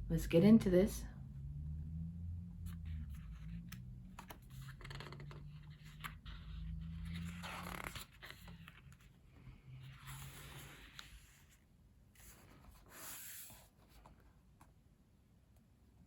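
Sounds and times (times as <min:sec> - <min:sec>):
low hum: 0:00.0 - 0:11.5
paper rustling: 0:04.2 - 0:11.5.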